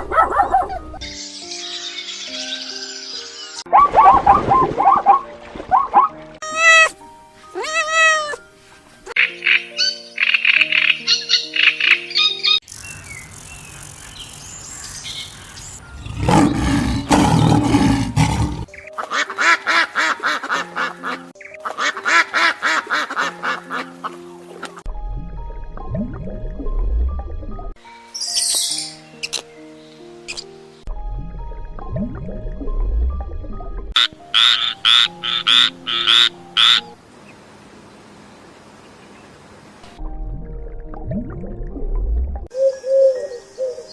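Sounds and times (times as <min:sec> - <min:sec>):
background music with held notes: 0:00.0 - 0:12.6, 0:15.8 - 0:37.1, 0:39.8 - 0:43.9
duck quacks: 0:19.0 - 0:23.9, 0:34.0 - 0:36.8.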